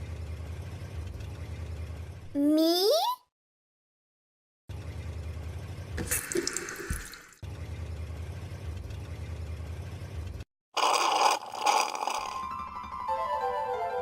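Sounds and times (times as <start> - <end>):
cartoon water running from tap: 6.0 - 7.4, 10.8 - 12.5
water splashing into bucket: 6.0 - 7.4.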